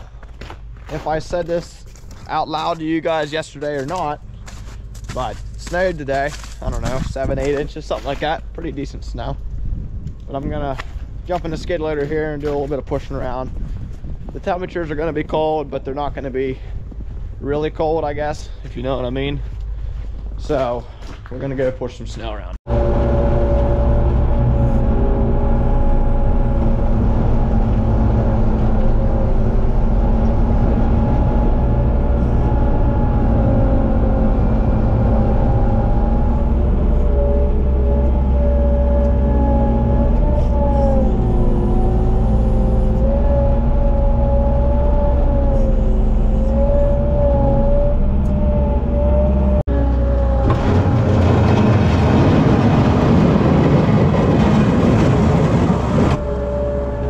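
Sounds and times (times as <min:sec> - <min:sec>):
engine whining tone: 0:22.7 - 0:57.0
skid loader engine running: 0:22.7 - 0:57.0.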